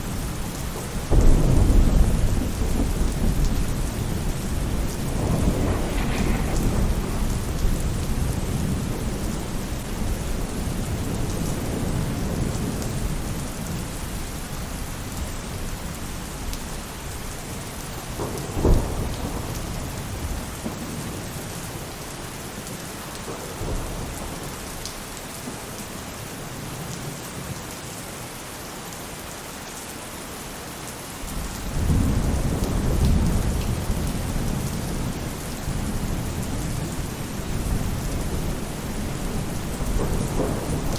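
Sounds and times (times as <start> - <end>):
thunder rumbling: 0.0 - 15.8, 17.0 - 22.0, 31.3 - 40.9
rain on a roof: 0.0 - 40.9
thunder clap: 0.1 - 13.3, 18.0 - 21.2, 31.6 - 40.9.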